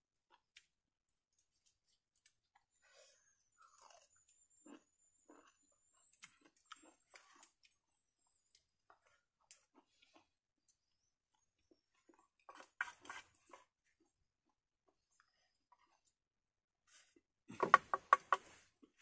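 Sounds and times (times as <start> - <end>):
person chewing food: 3.4 - 16.2.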